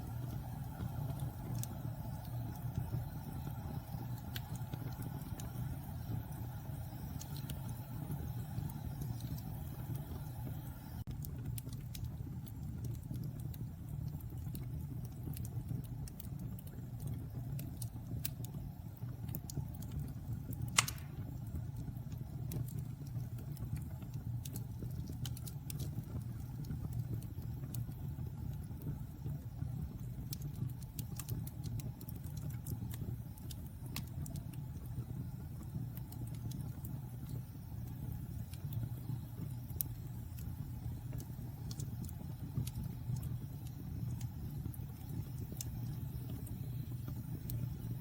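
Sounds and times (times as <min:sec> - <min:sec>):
fire crackling: 0:00.0 - 0:48.0
flames rumbling in fireplace: 0:00.0 - 0:48.0
sharp pop from fire: 0:20.7 - 0:21.4.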